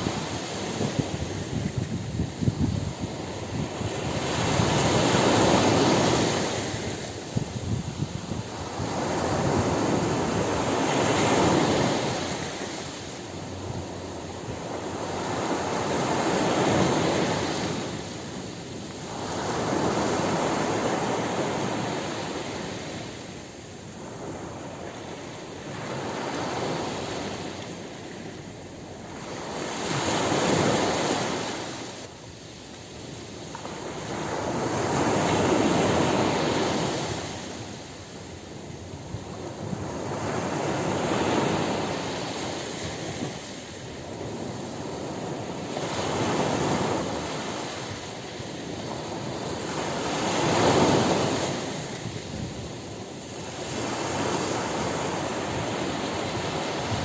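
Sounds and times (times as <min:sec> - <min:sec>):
ocean surf breaking: 0:00.0 - 0:57.0.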